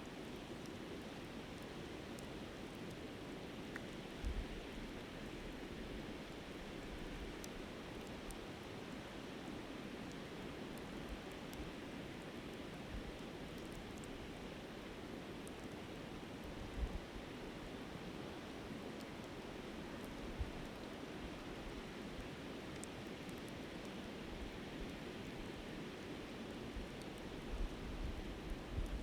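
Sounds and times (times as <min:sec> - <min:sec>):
low thumps of wind on microphone: 0:27.5 - 0:29.0.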